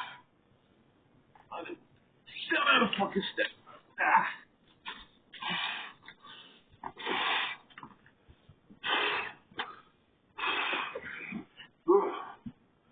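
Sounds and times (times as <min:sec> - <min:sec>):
person breathing heavily: 0:00.0 - 0:00.3, 0:05.4 - 0:07.7, 0:08.8 - 0:12.6.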